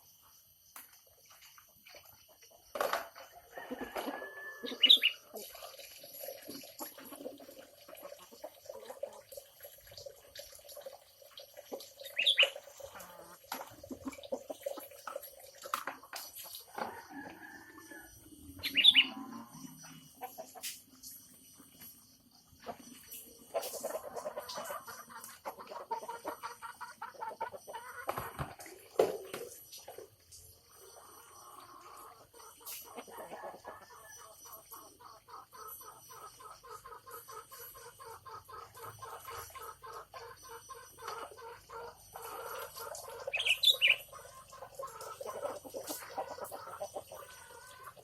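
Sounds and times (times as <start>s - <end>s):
chicken-like clucking: 1.6s - 9.3s, 11.6s - 48.0s
birds calling: 18.6s - 19.2s, 42.7s - 44.4s.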